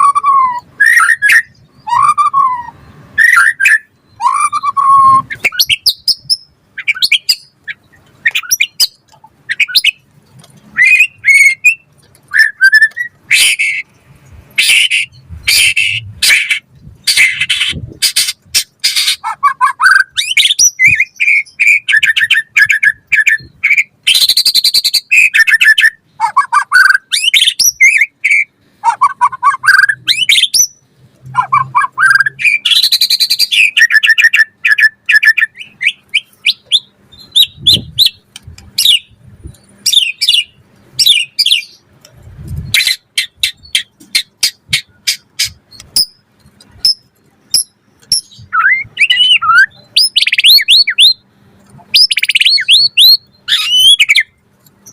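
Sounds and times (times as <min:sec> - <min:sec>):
bird singing varied phrases: 0:00.0 - 0:10.1, 0:10.7 - 0:42.0, 0:42.6 - 0:54.9.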